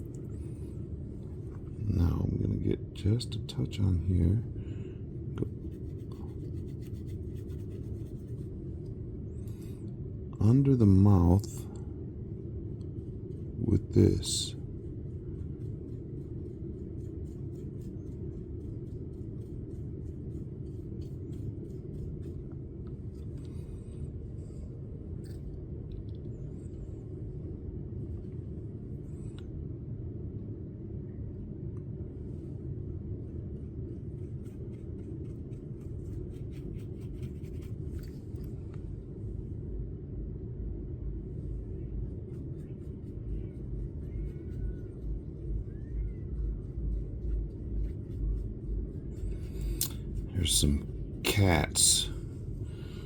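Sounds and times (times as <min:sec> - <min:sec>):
low room rumble: 0:00.0 - 0:53.0
brush scratching and tapping: 0:05.4 - 0:08.5, 0:15.0 - 0:23.7, 0:33.6 - 0:38.6, 0:46.3 - 0:52.1.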